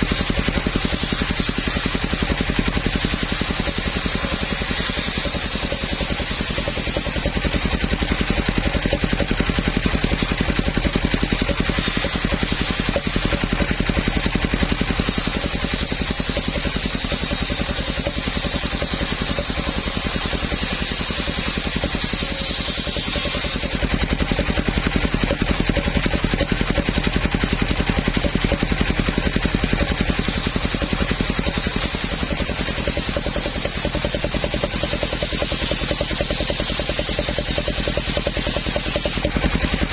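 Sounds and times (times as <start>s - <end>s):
sawmill engine running: 0.0s - 39.9s
high hiss: 14.9s - 23.8s.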